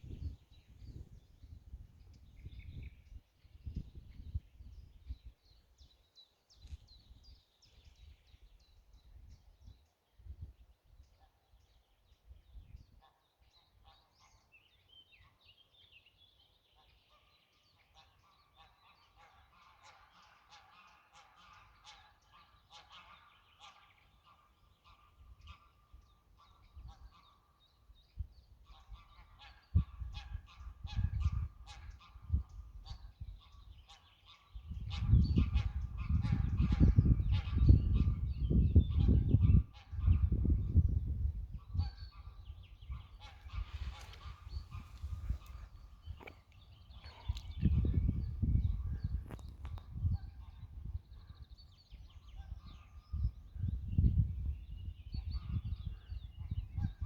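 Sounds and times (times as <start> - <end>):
geese honking: 42.1 - 46.3.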